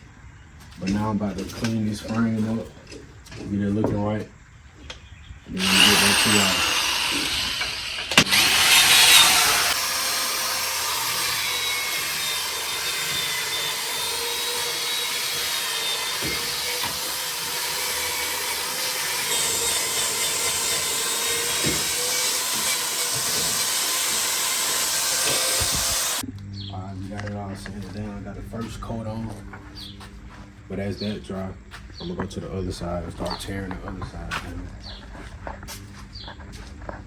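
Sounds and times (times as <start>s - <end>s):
power sander on steel: 5.5s - 26.2s.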